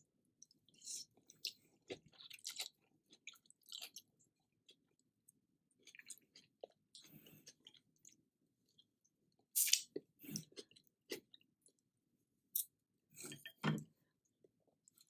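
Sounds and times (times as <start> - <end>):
person chewing: 0.4 - 4.1, 5.8 - 11.8.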